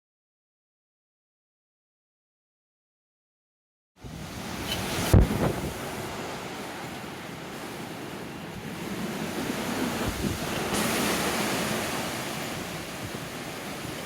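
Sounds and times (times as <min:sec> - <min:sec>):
surf rushing: 0:04.0 - 0:14.0
wind buffeting microphone: 0:04.0 - 0:14.0.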